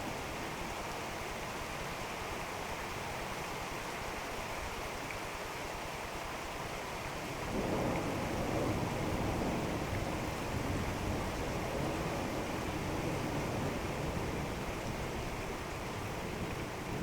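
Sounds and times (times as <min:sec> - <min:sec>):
steady rain falling: 0:00.0 - 0:17.0
low rumble of thunder: 0:07.4 - 0:14.8.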